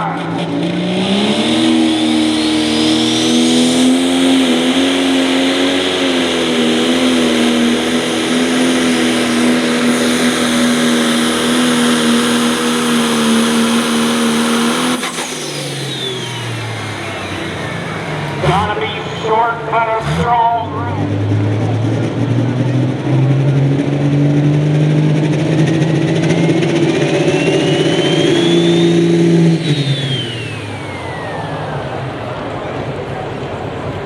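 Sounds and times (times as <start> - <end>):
diesel engine revving: 0.0 - 34.0
turbo whistle: 27.0 - 31.6.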